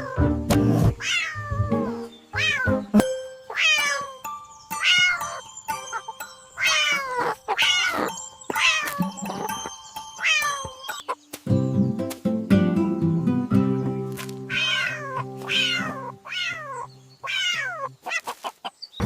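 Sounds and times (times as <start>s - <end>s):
background music: 0.0s - 17.1s
cat meowing: 1.0s - 2.8s, 3.5s - 4.2s, 4.8s - 5.4s, 6.6s - 9.1s, 14.5s - 18.3s.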